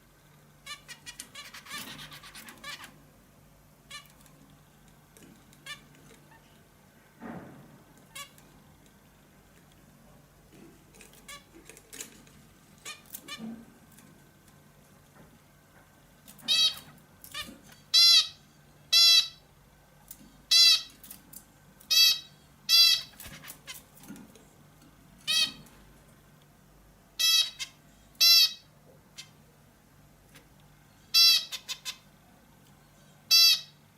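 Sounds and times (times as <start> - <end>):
songbird chirping and calling: 0.6 - 3.0, 21.9 - 23.8, 27.2 - 29.4.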